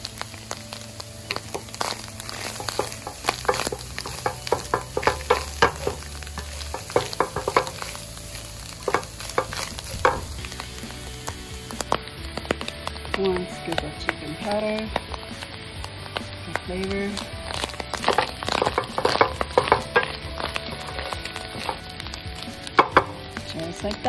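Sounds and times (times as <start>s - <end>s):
oil sizzling in a pan: 0.0s - 24.0s
spatula scraping a metal pan: 1.5s - 8.1s, 17.2s - 22.0s.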